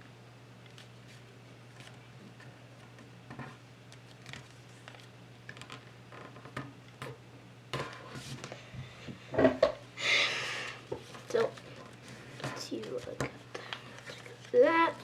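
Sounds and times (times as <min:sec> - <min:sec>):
paper being folded and creased: 0:04.0 - 0:05.8, 0:11.1 - 0:15.0.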